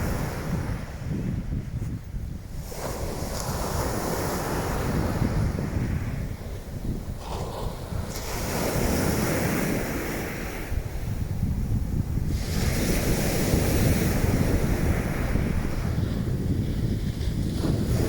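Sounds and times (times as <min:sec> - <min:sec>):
waves washing onto beach: 0:00.0 - 0:18.0
wind buffeting microphone: 0:00.0 - 0:18.0.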